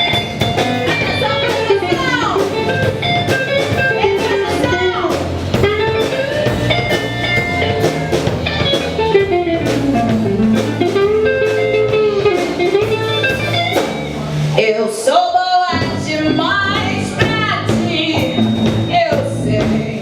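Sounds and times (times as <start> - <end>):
guitar solo: 0.0 - 14.5
bass and drums: 0.0 - 20.0.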